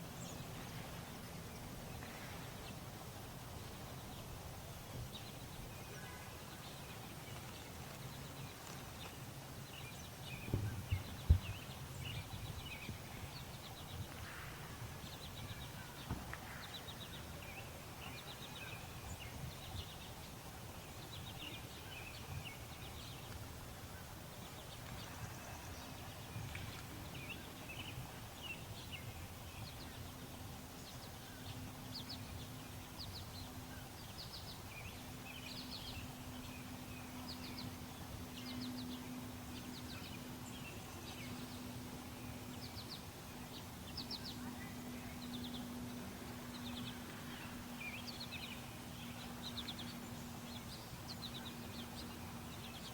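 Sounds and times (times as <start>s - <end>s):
low steady hum: 0.0s - 52.9s
small birds chirping: 0.0s - 52.9s.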